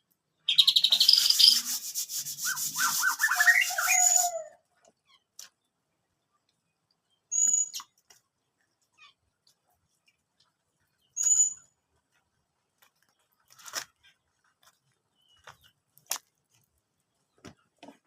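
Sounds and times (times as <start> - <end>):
bird chirp: 0.2 - 9.2, 10.8 - 11.8, 15.0 - 15.8.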